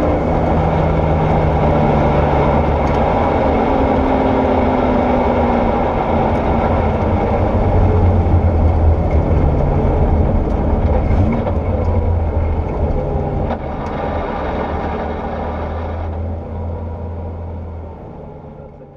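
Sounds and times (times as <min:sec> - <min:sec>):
car engine running at low revs: 0:00.0 - 0:18.9.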